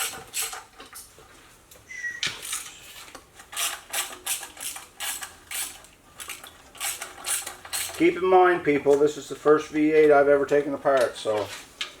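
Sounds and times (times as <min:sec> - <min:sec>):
high squeak: 0:01.9 - 0:02.4
ratchet wrench clicking: 0:03.5 - 0:08.0.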